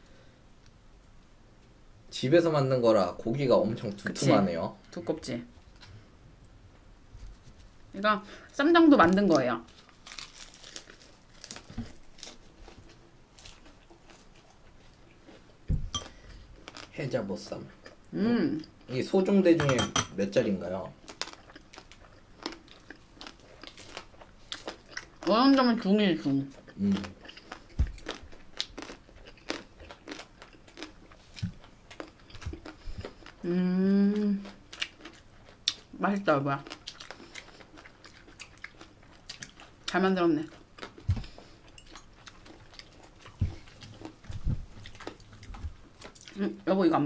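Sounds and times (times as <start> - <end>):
person chewing: 9.7 - 16.9, 21.0 - 25.3, 26.5 - 35.9, 36.6 - 46.4
person humming mmm: 33.4 - 34.5.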